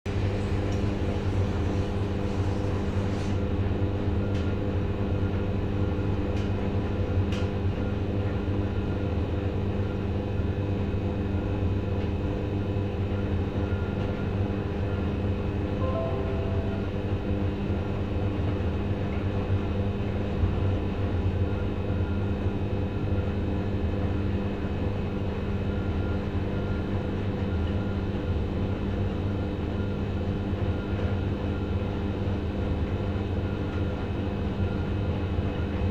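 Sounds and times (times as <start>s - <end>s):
brief short tones: 15.8s - 17.4s.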